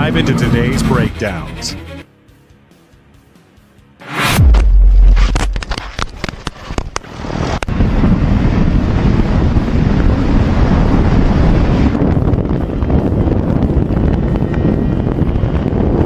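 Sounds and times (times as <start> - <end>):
vehicle noise: 0.0 - 16.0
wind buffeting microphone: 5.5 - 16.0.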